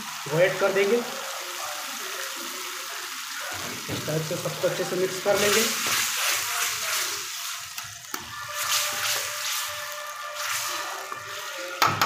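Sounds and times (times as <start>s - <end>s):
gravy sizzling and bubbling: 0.0s - 12.0s
spatula scraping and knocking pan: 8.1s - 12.0s.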